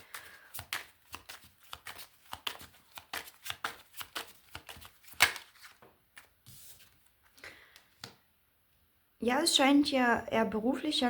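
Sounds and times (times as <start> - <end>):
cards being shuffled: 0.0 - 8.2.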